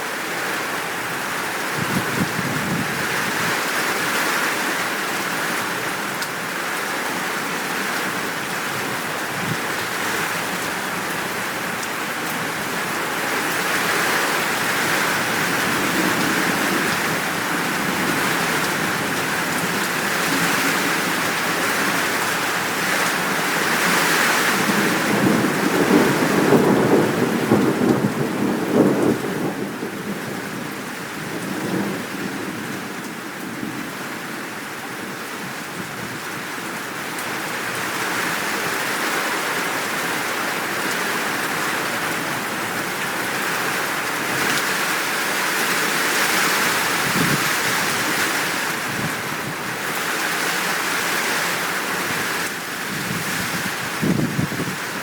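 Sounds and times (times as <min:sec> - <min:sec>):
heavy rain: 0:00.0 - 0:55.0
rolling thunder: 0:24.8 - 0:29.9.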